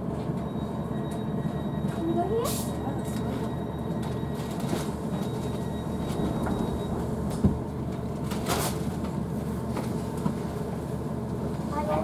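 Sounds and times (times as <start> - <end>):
train cabin rumble: 4.9 - 10.4.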